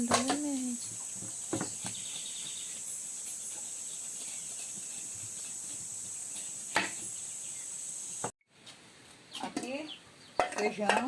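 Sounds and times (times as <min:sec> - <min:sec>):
insects chirping: 0:00.0 - 0:08.3.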